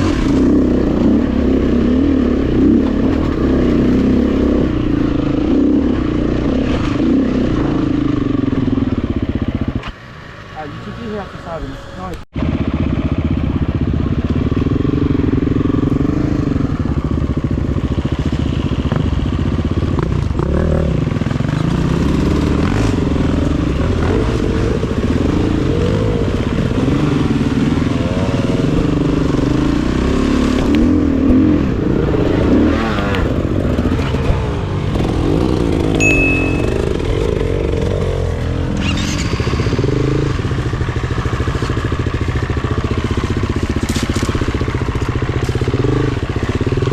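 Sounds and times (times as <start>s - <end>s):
dirt bike engine revving: 0.0s - 9.0s, 20.0s - 46.9s.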